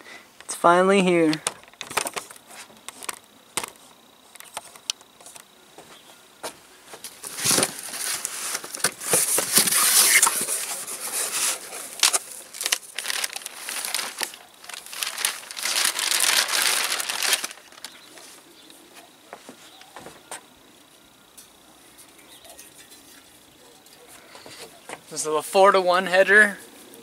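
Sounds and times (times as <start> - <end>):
packaging crinkling and tearing: 7.1 - 18.3.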